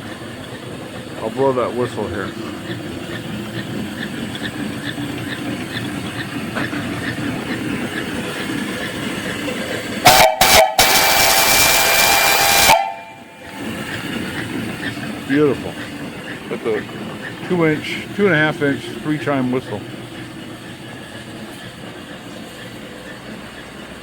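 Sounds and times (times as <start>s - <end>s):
steam engine running: 0.0s - 24.0s
steam whistle blasts: 10.0s - 13.5s.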